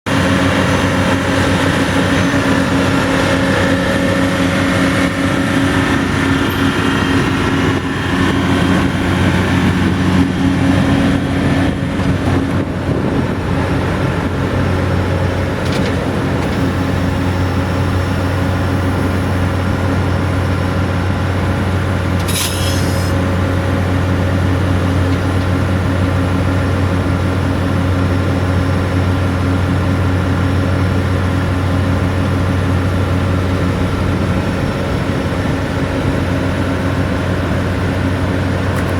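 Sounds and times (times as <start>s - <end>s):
diesel engine running: 0.0s - 38.9s
short hiss: 22.3s - 23.2s.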